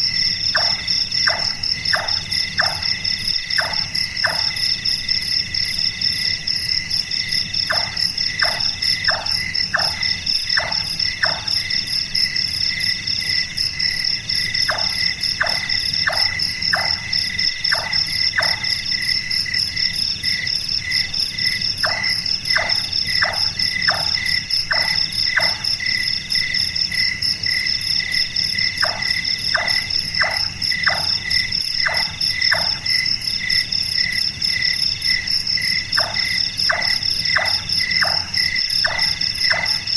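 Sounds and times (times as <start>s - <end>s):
crickets and insects chorus: 0.0s - 39.9s
nightjar knocking calls: 0.6s - 2.9s, 3.6s - 4.5s, 7.7s - 11.5s, 14.6s - 17.0s.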